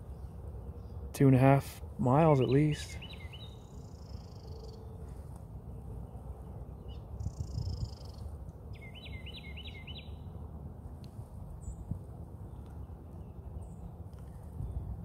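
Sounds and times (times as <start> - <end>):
low outdoor rumble: 0.0 - 15.0
small bird rising chirps: 6.9 - 10.2.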